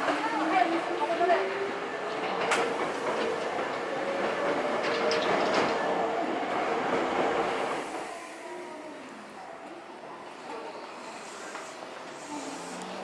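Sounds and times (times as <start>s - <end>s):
train wheels clacking over rail joints: 0.0s - 7.8s
train running hum: 0.0s - 8.5s.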